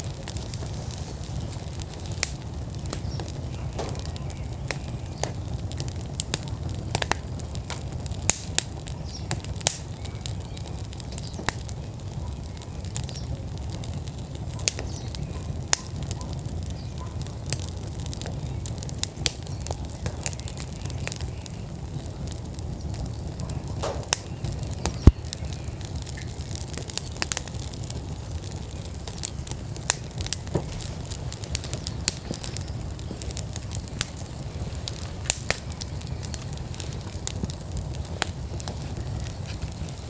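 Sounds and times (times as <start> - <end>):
low fire rumble: 0.0 - 40.0
wood fire crackling and popping: 0.0 - 40.0.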